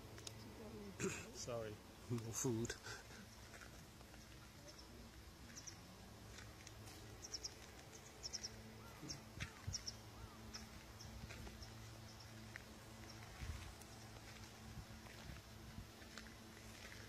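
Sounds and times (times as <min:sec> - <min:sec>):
faint steady low hum: 0:00.0 - 0:17.0
small birds chirping faintly: 0:00.0 - 0:17.0.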